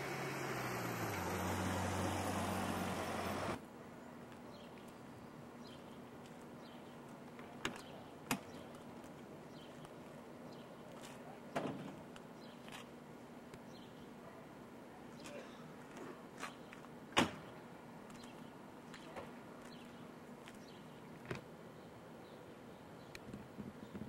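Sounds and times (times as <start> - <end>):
vehicle engine running: 0.0 - 3.6
quiet street background: 0.0 - 24.0.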